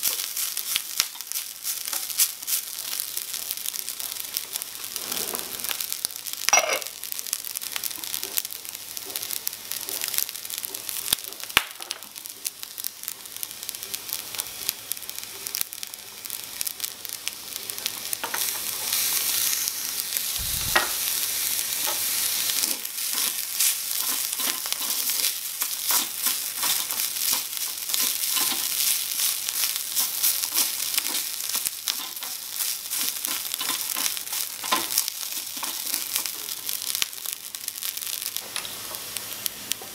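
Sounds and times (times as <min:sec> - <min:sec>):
rice sizzling in a wok: 0:00.0 - 0:39.9
wooden spatula scraping: 0:04.9 - 0:05.8, 0:21.9 - 0:36.3.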